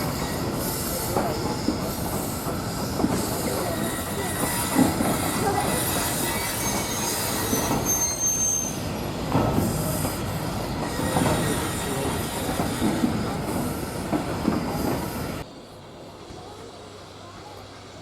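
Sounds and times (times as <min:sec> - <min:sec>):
rail-joint clicks: 0:00.0 - 0:15.4
wheels squealing: 0:00.0 - 0:15.4
train rumbling past: 0:00.0 - 0:18.0.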